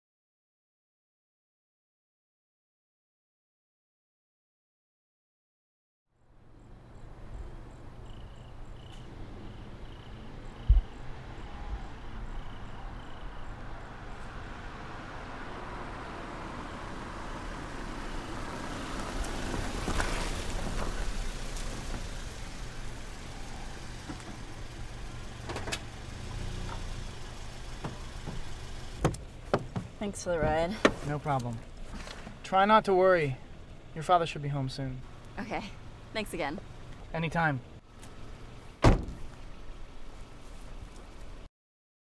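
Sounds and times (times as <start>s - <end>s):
car engine running: 9.1s - 41.4s
sharp thump: 38.8s - 39.3s.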